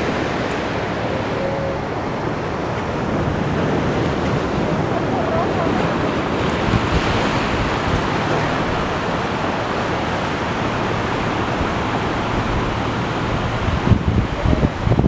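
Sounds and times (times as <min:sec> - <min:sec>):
ocean surf rushing: 0:00.0 - 0:15.0.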